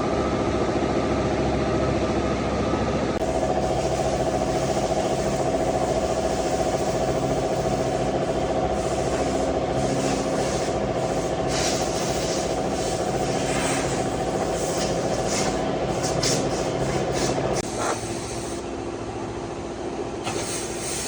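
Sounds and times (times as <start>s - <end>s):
car engine running: 3.2s - 18.2s
short air hisses: 3.3s - 18.6s, 20.2s - 21.0s.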